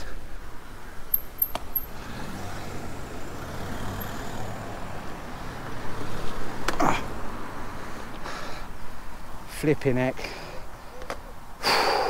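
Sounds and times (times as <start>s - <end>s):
motor vehicle humming: 0.0s - 9.2s.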